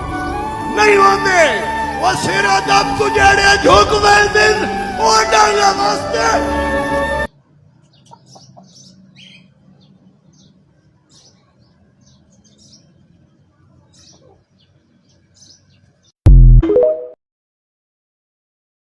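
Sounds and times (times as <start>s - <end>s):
small birds chirping: 7.8s - 16.2s.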